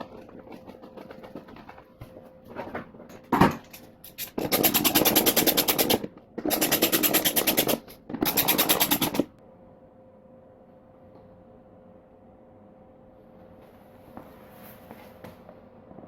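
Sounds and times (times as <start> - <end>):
powered wrench clattering: 3.3 - 9.3
faint steady hum: 9.3 - 16.0.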